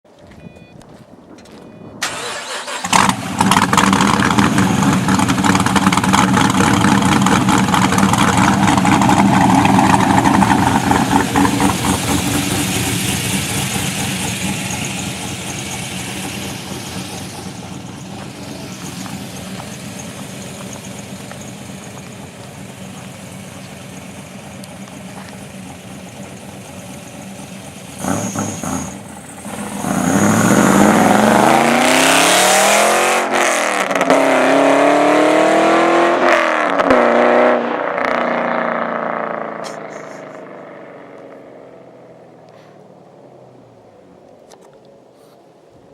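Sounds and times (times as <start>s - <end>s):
loud pulsing engine idle: 3.9s - 29.5s.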